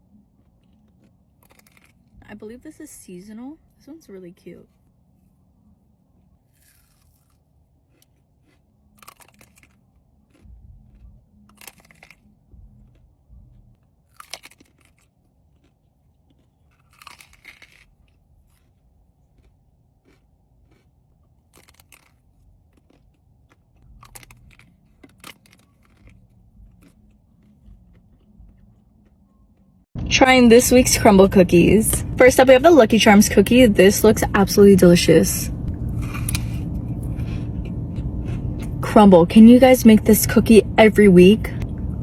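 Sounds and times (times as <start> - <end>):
biting and chewing: 0.0 - 2.3, 6.0 - 29.9, 35.5 - 39.0
low steady hum: 0.0 - 42.0.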